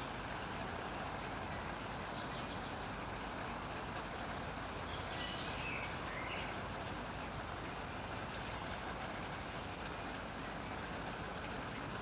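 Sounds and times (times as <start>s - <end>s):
outdoor rumble and hiss: 0.0s - 12.0s
faint songbird calls: 1.5s - 3.0s, 4.7s - 6.6s.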